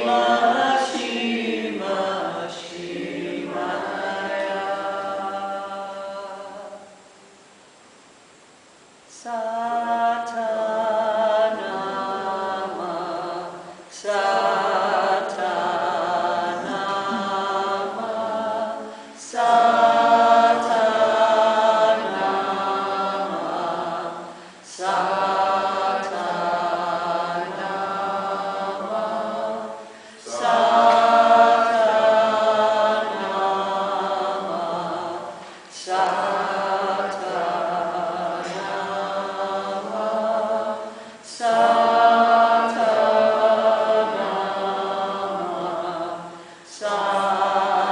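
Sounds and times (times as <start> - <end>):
group of voices chanting: 14.0 - 40.8.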